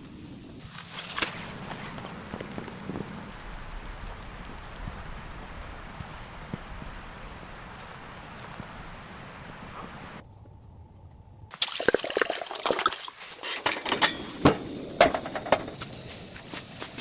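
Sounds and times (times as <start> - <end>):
liquid sloshing and trickling: 11.5 - 13.4.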